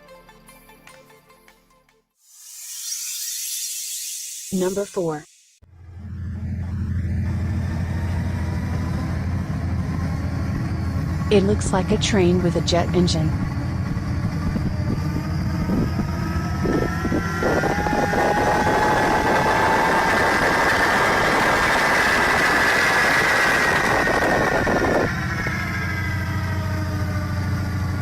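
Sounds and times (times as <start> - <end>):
jet engine turbine whine: 2.3 - 28.0
loud rushing roar: 5.7 - 28.0.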